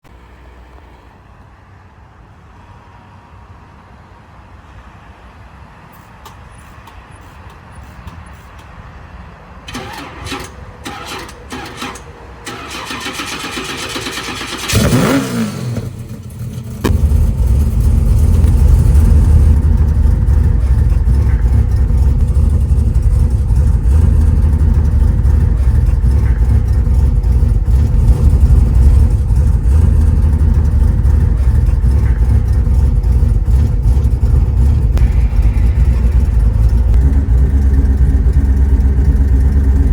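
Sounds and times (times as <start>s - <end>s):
car engine idling: 9.7s - 39.9s
engine cranking with falling whine: 9.7s - 39.9s
engine knocks: 14.2s - 39.9s.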